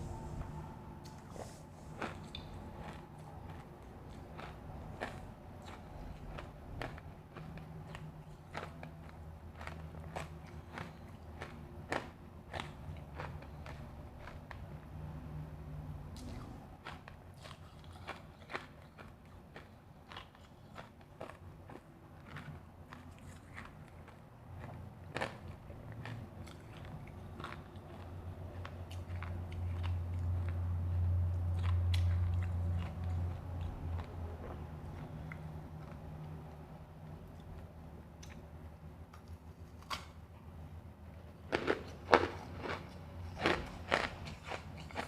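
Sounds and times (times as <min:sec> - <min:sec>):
low steady hum: 0:00.0 - 0:45.0
ice crunching while chewed: 0:01.8 - 0:14.8, 0:16.2 - 0:36.4, 0:41.5 - 0:45.0.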